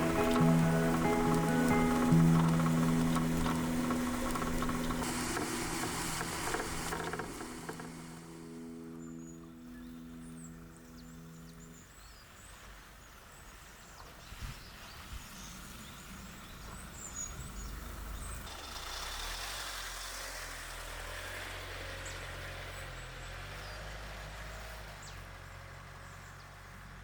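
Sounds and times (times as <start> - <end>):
short knocks: 0.0 - 8.7
truck engine humming: 0.0 - 11.8.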